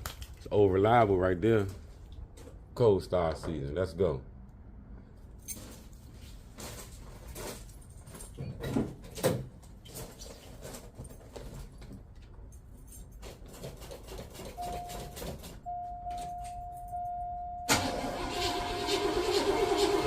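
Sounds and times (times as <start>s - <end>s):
keys jangling: 5.4s - 6.0s, 12.4s - 17.2s
steady car warning tone: 14.6s - 18.7s.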